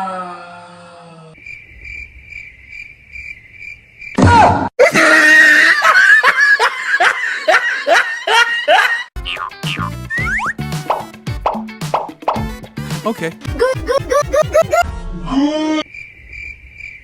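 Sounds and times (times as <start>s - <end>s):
cricket chirping: 1.4s - 4.2s, 15.9s - 17.0s
high-pitched rhythmic laughing: 13.5s - 14.8s.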